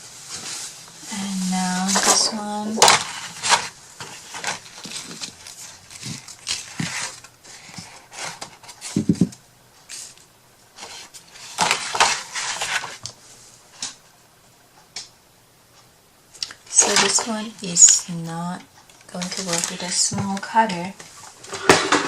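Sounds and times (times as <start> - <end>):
paper rustling and scraping: 0.0 - 10.2, 10.8 - 13.1, 16.7 - 18.3, 19.1 - 22.0.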